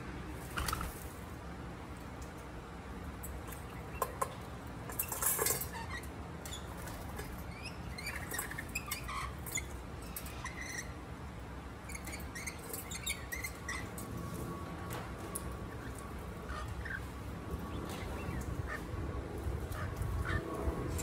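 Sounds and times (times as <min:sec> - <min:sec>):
wild birds chirping: 0:05.5 - 0:11.2, 0:11.8 - 0:14.6, 0:15.3 - 0:21.0.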